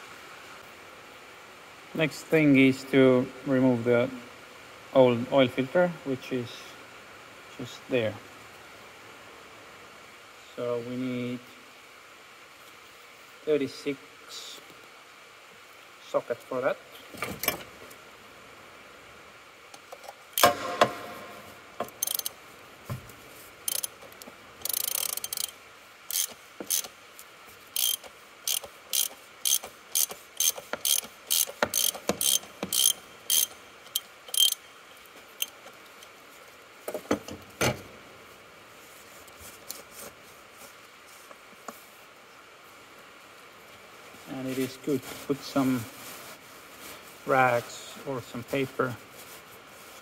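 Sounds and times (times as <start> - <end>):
ratchet wrench clicking: 21.8 - 22.4, 23.7 - 24.0, 24.6 - 26.9, 27.8 - 34.6.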